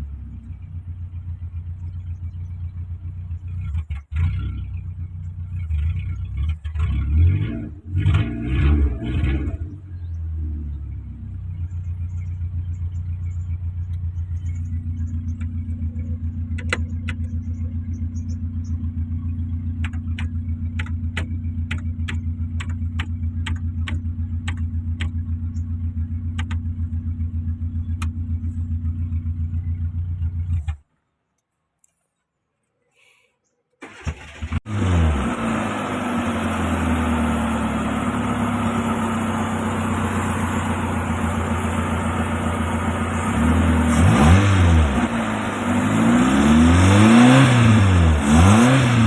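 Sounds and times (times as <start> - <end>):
car engine idling: 0.0 - 31.2, 33.8 - 49.0
sharp clicks: 16.5 - 17.6, 19.8 - 25.7, 26.3 - 26.7.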